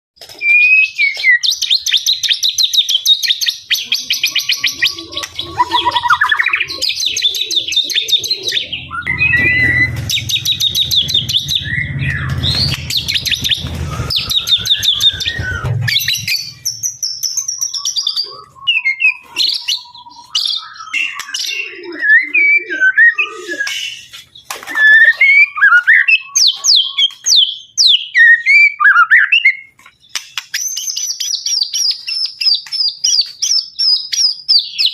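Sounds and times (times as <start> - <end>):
songbird singing trills and whistles: 0.4 - 34.9
low rumble: 8.7 - 16.9.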